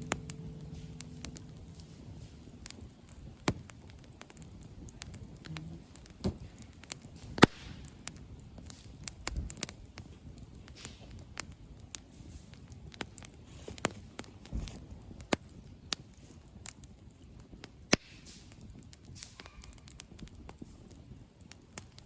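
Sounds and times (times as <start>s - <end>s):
sharp pops: 0.0s - 10.1s, 17.9s - 19.8s
campfire crackling: 0.0s - 22.0s
loud wood snap: 7.3s - 8.9s, 17.9s - 18.6s.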